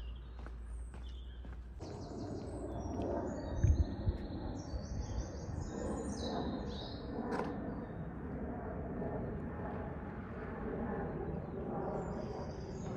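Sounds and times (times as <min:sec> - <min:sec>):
songbirds chirping: 0:00.0 - 0:08.2, 0:11.0 - 0:12.9.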